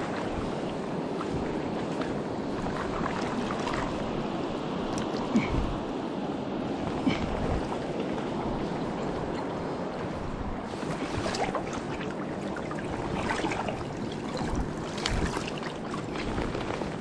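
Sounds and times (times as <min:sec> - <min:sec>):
river water rushing: 0:00.0 - 0:17.0
short splashes and knocks: 0:06.8 - 0:17.0.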